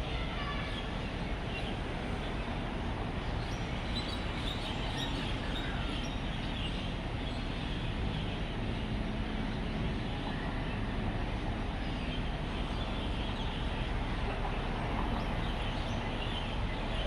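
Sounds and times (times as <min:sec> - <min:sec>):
faint engine drone: 0:00.0 - 0:17.0
road traffic hum: 0:00.0 - 0:17.0.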